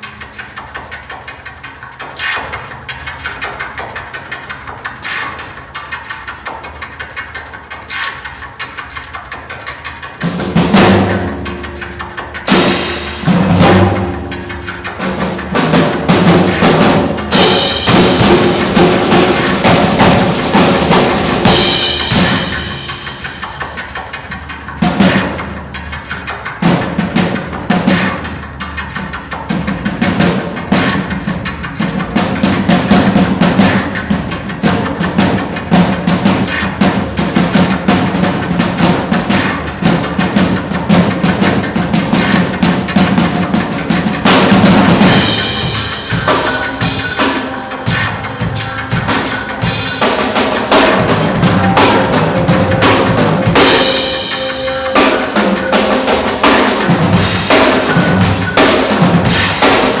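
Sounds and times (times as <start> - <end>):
fast drum beat: 0.8 - 60.0
cymbal crash: 10.6 - 23.8, 44.8 - 60.0
bright held tones: 45.0 - 60.0
held low tone: 46.3 - 58.2.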